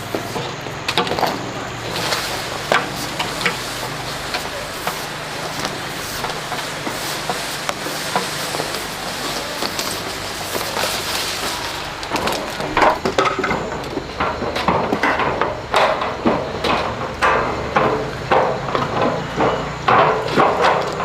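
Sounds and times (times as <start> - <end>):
hammer strikes: 0.0 - 21.0
steady hiss: 0.0 - 21.0.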